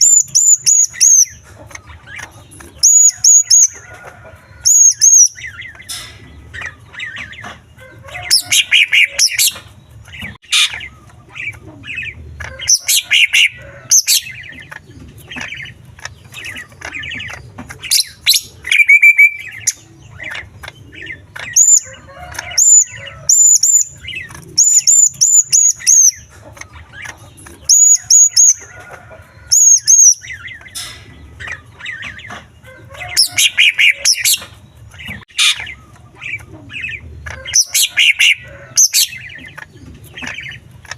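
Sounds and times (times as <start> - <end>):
bird singing with mimicked calls: 0.0 - 3.8, 4.6 - 7.6, 8.2 - 28.6, 29.5 - 40.9.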